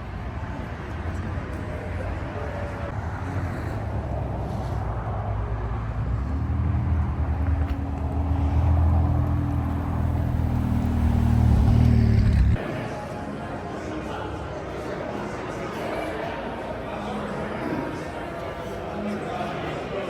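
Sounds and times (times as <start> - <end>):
car engine rumbling: 5.5 - 12.6.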